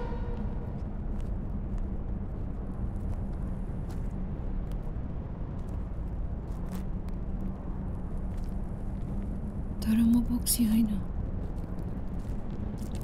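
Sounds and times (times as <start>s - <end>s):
faint hum: 0.0s - 12.8s
low steady rumble: 0.0s - 13.0s.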